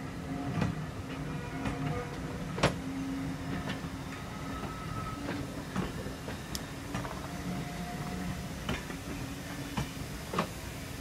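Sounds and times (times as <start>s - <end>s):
railway carriages rumbling: 0.0s - 11.0s
train wheels clicking on track: 0.0s - 11.0s
faint wheel squeal: 4.2s - 5.6s.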